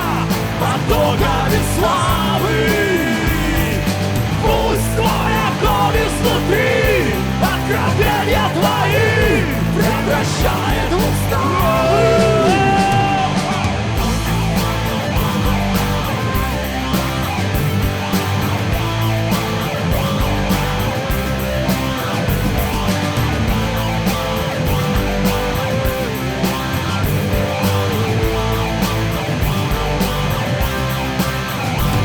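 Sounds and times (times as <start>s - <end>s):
bass guitar: 0.0s - 32.0s
electric guitar lead: 0.0s - 32.0s
steady drum beat: 0.0s - 32.0s.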